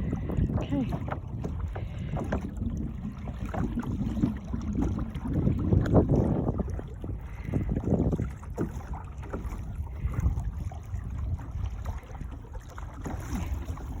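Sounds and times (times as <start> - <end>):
water slapping against hull: 0.0 - 14.0
wind rumbling on microphone: 0.0 - 14.0.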